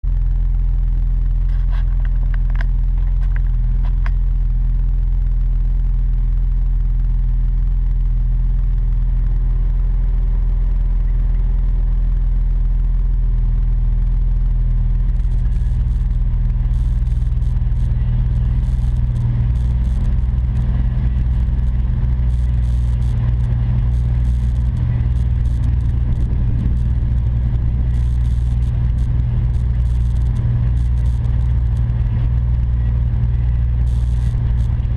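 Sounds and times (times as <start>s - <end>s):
low exhaust drone: 0.0s - 34.9s
crackly hiss: 0.2s - 34.9s.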